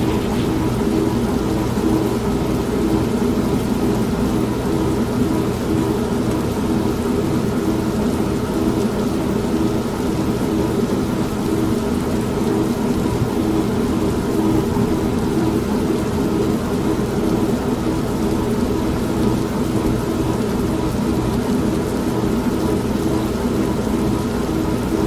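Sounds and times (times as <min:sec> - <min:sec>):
thunder: 0:00.0 - 0:01.5
continuous rain: 0:00.0 - 0:25.0
washing machine pulsing hum: 0:00.0 - 0:25.0.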